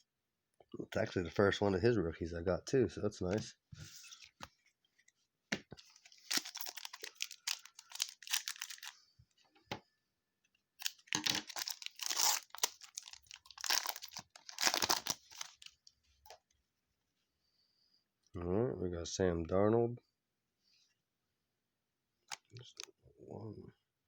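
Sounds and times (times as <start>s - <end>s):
wrapper tearing and crinkling: 6.0s - 8.9s, 10.8s - 15.8s.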